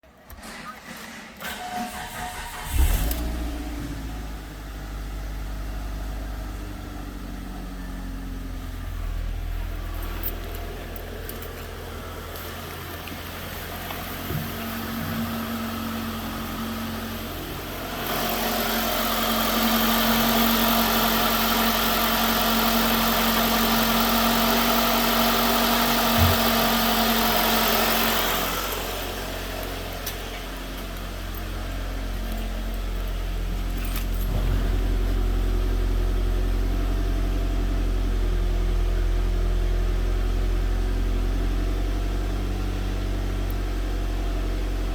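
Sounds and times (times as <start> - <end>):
car engine starting and running: 0.0 - 44.9.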